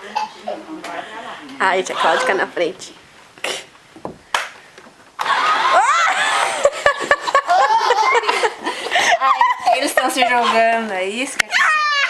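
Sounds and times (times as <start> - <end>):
children squealing and giggling: 1.9 - 2.5, 5.2 - 10.8, 11.4 - 12.0.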